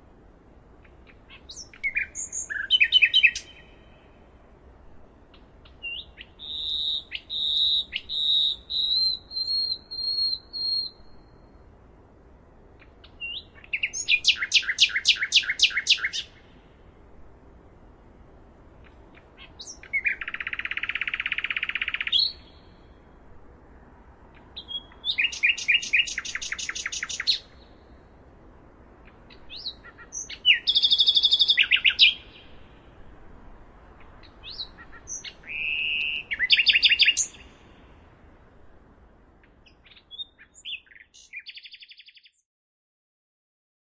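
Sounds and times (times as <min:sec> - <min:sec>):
faint steady hiss: 0:00.0 - 0:42.2
birds singing high chirps: 0:00.8 - 0:04.4, 0:05.0 - 0:11.8, 0:12.8 - 0:16.6, 0:18.8 - 0:23.1, 0:24.3 - 0:28.2, 0:29.0 - 0:33.0, 0:33.9 - 0:38.2, 0:39.4 - 0:42.5.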